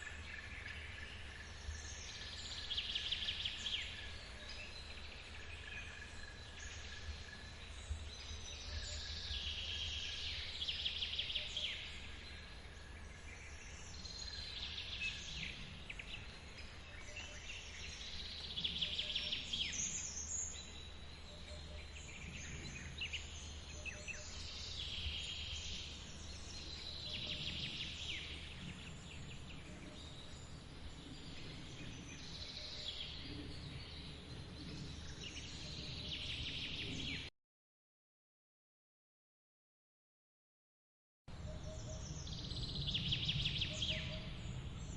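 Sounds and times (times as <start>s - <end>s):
birds singing: 0.0s - 37.3s, 41.3s - 44.9s.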